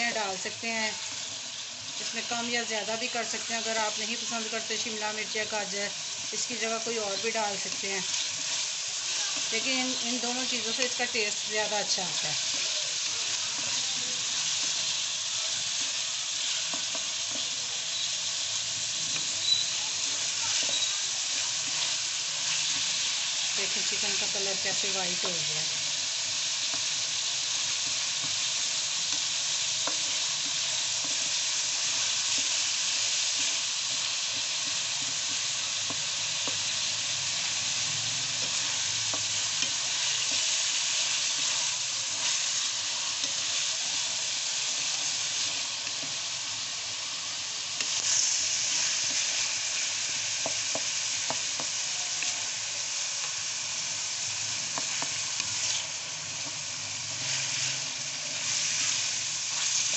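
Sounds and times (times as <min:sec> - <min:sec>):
chicken sizzling in oil: 0:00.0 - 0:59.9
wooden spoon scraping a pan: 0:19.0 - 0:23.1.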